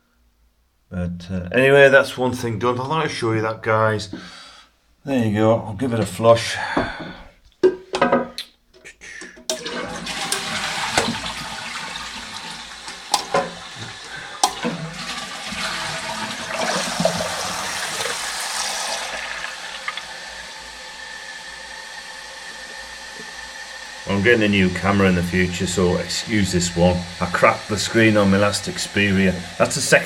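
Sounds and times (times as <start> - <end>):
toilet handle clicks: 9.2 - 11.4, 12.8 - 14.9
cistern refilling hiss: 9.4 - 30.0
toilet flushing: 9.4 - 30.0.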